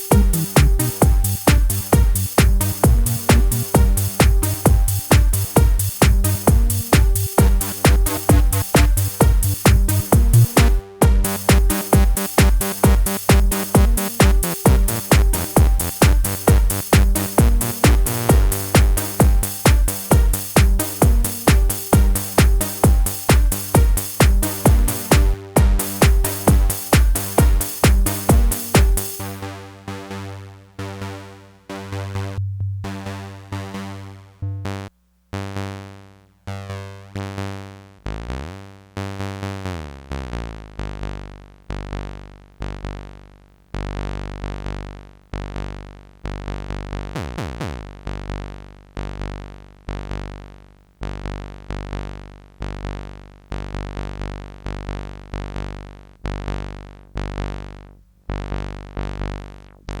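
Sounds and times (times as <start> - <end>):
electronic house music: 0.0 - 34.9.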